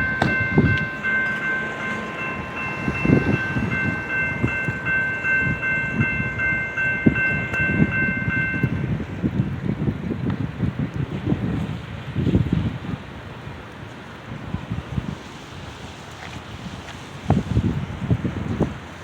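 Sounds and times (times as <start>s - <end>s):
pulsing ringing tone: 0.0s - 8.9s
train wheels clattering on rails: 0.0s - 9.6s.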